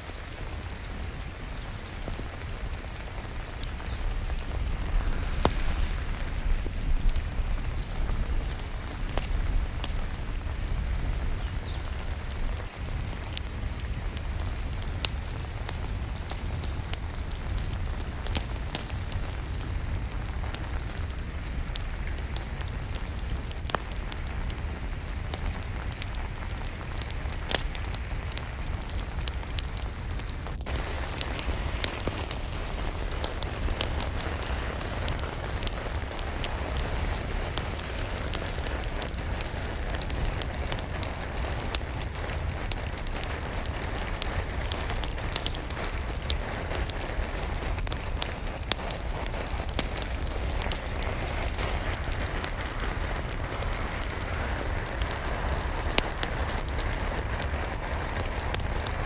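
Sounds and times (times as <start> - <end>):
steady rain: 0.0 - 59.0
wood fire crackling: 0.0 - 59.0
low rumble: 3.4 - 12.5.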